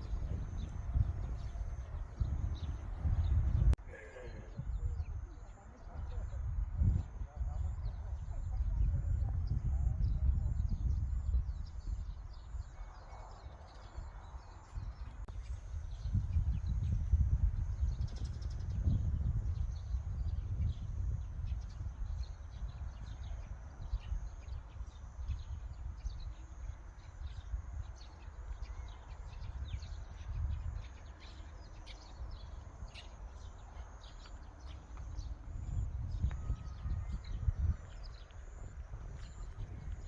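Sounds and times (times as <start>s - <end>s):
heavy low rumble: 0.0s - 3.8s.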